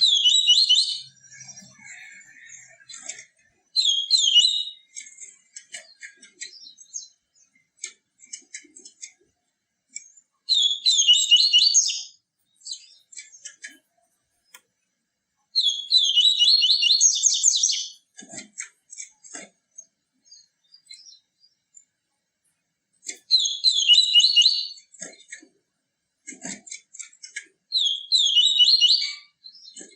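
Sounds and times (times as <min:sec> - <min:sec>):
bird twittering song: 0:00.0 - 0:07.8, 0:09.9 - 0:14.7, 0:15.5 - 0:18.0, 0:19.7 - 0:22.0, 0:23.1 - 0:24.9, 0:27.7 - 0:29.9.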